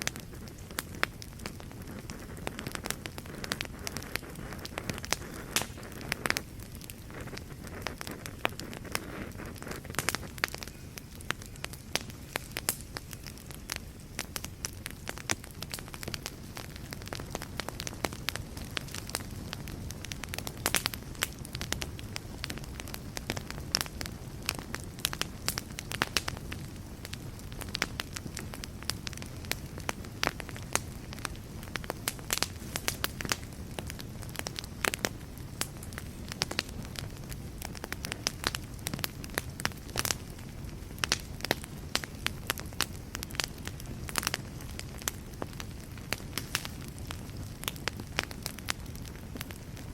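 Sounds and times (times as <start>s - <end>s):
wood fire crackling and popping: 0.0s - 49.9s.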